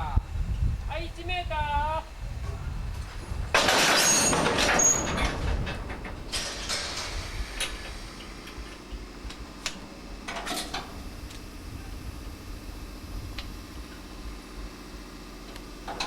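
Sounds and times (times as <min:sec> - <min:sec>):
clicks and knocks: 0:03.6 - 0:10.9
short high squeals: 0:03.9 - 0:05.6
train air brakes hissing: 0:06.2 - 0:09.2.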